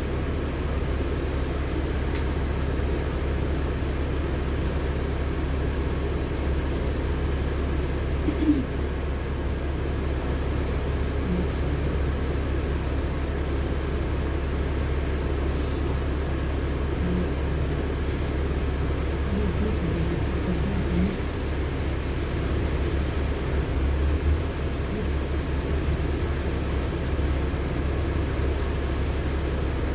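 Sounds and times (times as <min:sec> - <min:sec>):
bus engine and road drone: 0:00.0 - 0:29.9.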